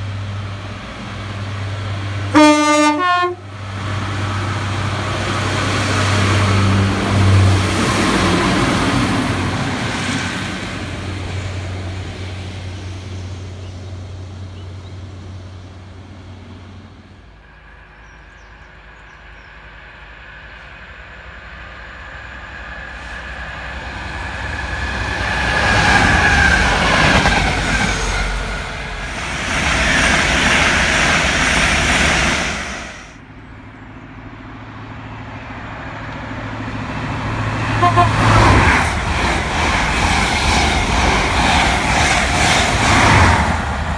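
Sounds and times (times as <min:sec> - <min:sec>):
train rushing past: 0:00.0 - 0:43.9
train horn toot: 0:02.3 - 0:03.4, 0:37.6 - 0:38.7.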